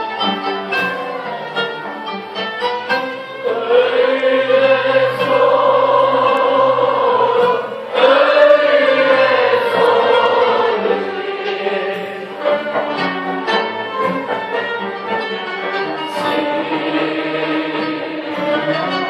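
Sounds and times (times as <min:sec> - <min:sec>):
instrumental accompaniment: 0:00.0 - 0:19.0.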